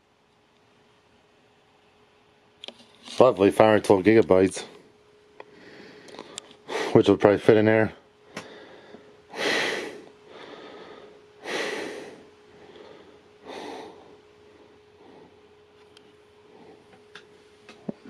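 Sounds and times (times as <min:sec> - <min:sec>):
faint steady hum: 0:00.0 - 0:18.0
person breathing out heavily: 0:05.5 - 0:07.0, 0:08.2 - 0:15.6.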